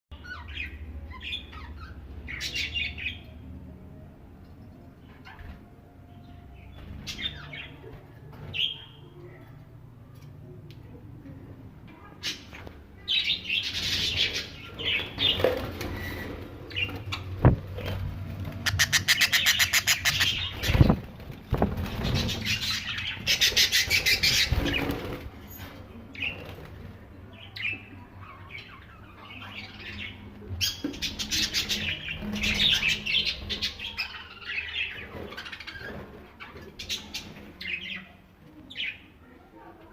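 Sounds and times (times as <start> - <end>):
budgerigars chirping: 18.6 - 21.0.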